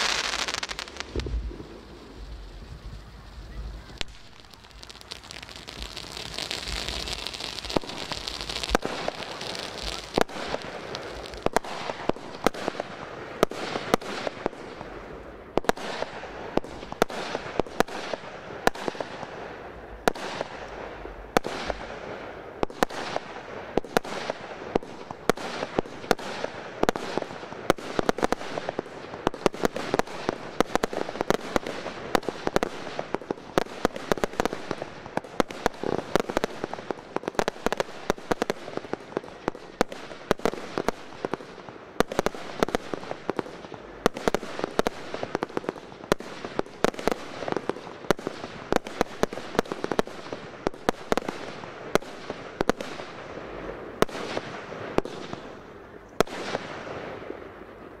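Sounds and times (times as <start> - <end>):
steady hiss: 0.0 - 17.6
fireworks bangs: 0.0 - 58.0.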